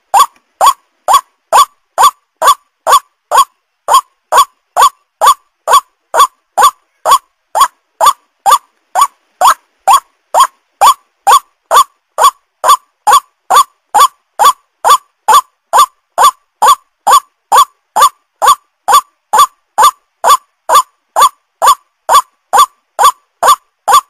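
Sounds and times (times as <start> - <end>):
waterhen calling: 0.0 - 24.0.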